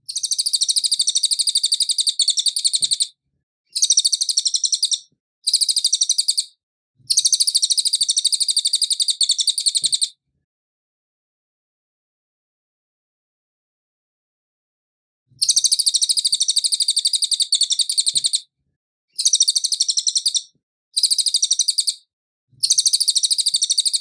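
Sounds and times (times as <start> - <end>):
songbird trilling: 0.1 - 3.1, 3.8 - 6.5, 7.1 - 10.1, 15.4 - 18.4, 19.2 - 22.0, 22.6 - 24.0.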